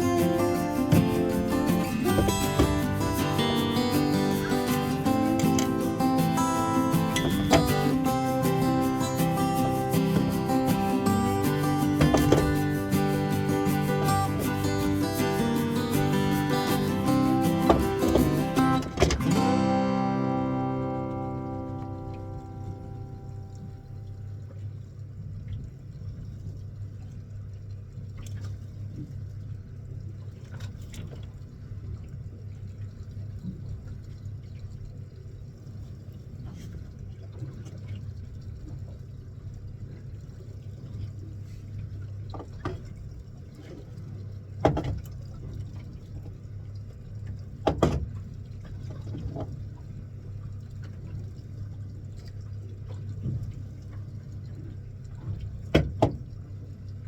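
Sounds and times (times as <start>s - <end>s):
boat engine humming: 0.0s - 57.0s
water sloshing against hull: 0.0s - 57.0s
sharp knocks: 0.2s - 5.7s, 11.5s - 12.9s.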